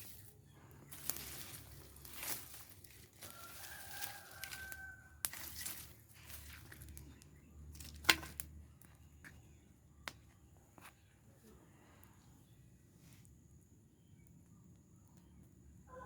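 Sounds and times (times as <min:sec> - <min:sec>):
fire crackling: 0:00.0 - 0:15.6
rooster crowing: 0:03.1 - 0:05.6.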